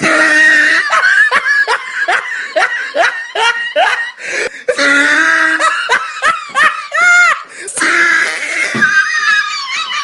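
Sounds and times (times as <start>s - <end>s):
person laughing hard: 0.0s - 10.0s.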